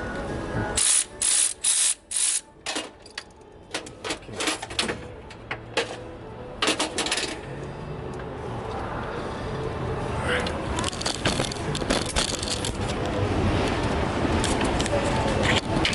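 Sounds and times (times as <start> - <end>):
ratchet wrench clicking: 0.8 - 2.5.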